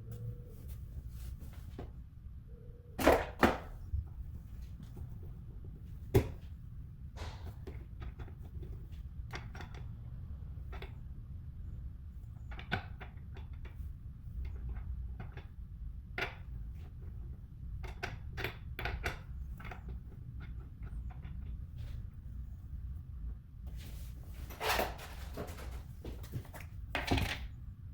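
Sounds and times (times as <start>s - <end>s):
clicks and knocks of hard objects: 24.5s - 27.5s.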